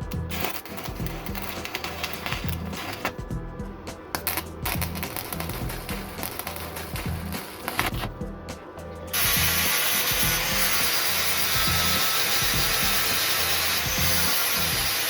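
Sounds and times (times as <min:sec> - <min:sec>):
power tool grinding metal: 0:09.1 - 0:15.0.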